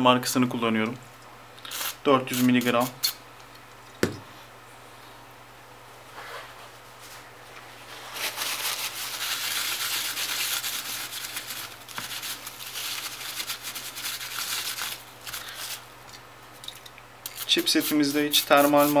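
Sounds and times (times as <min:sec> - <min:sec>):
scratchy rubbing: 0:07.8 - 0:15.0.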